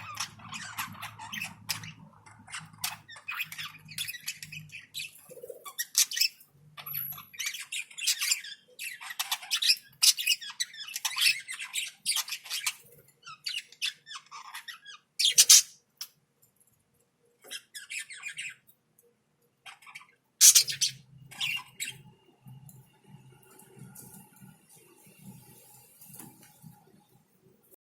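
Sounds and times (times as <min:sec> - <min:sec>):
parrots squawking and chirping: 0:00.0 - 0:16.1, 0:17.4 - 0:18.7, 0:19.6 - 0:22.1.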